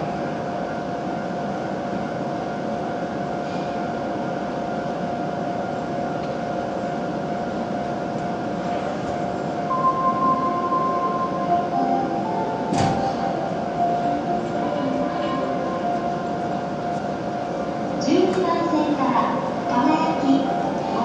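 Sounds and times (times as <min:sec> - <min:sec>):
train equipment humming: 0:00.0 - 0:21.0
steady higher tone: 0:09.3 - 0:21.0.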